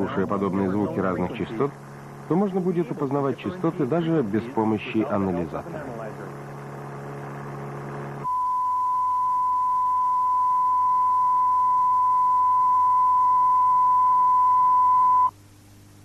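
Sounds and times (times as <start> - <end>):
steady test tone: 5.8 - 15.3.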